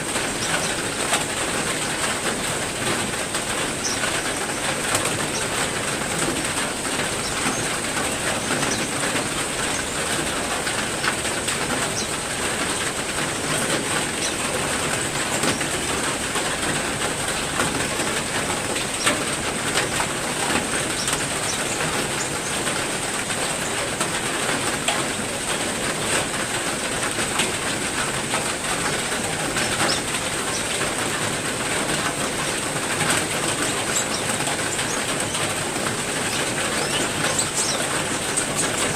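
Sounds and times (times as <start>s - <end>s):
heavy rain falling: 0.0s - 38.9s
small birds chirping: 0.1s - 12.6s, 13.2s - 15.9s, 17.7s - 22.8s, 28.8s - 38.9s.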